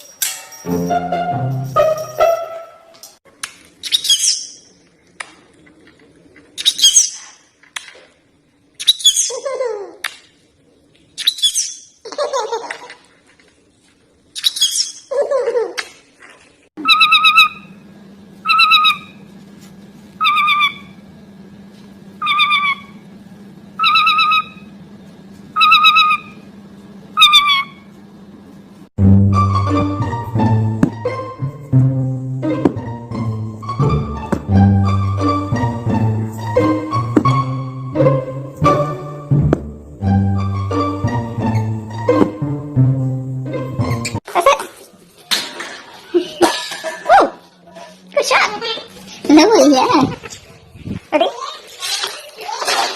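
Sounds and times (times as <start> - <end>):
parrots calling: 16.8 - 17.8, 18.4 - 19.2, 20.2 - 21.0, 22.2 - 23.0, 23.8 - 24.7, 25.5 - 26.4, 27.2 - 27.9
steady low hum: 16.8 - 44.2.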